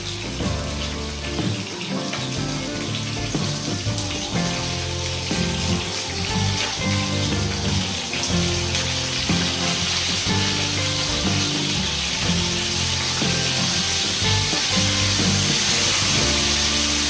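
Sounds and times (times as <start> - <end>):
background music: 0.0 - 17.0
chicken frying in hot oil: 0.0 - 17.0.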